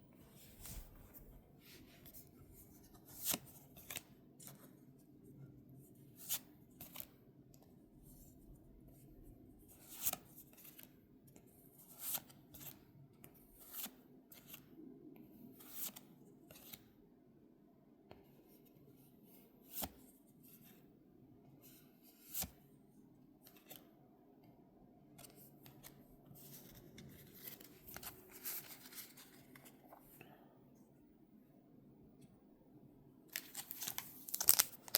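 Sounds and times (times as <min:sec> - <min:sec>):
packaging clicks and snaps: 0:33.4 - 0:34.9.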